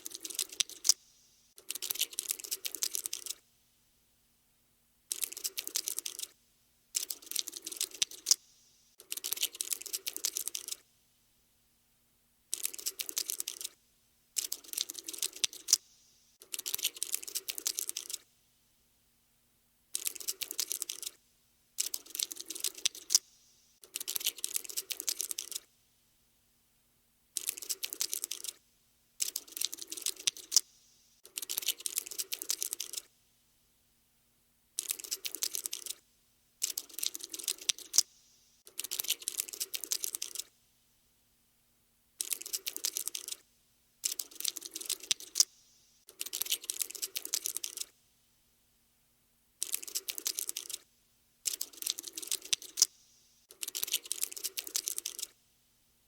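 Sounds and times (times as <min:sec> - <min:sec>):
rapid dry skittering clicks: 0:01.6 - 0:03.4, 0:05.1 - 0:06.4, 0:07.0 - 0:08.4, 0:12.5 - 0:13.8, 0:16.4 - 0:18.2, 0:31.3 - 0:33.1, 0:34.8 - 0:36.0, 0:36.6 - 0:38.1, 0:42.2 - 0:43.4, 0:49.6 - 0:50.8, 0:51.5 - 0:52.9, 0:53.5 - 0:55.3.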